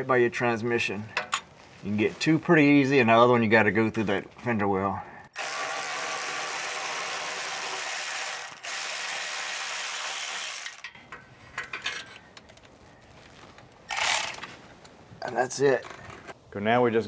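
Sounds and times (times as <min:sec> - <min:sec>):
ratchet wrench clicking: 0:13.9 - 0:14.5.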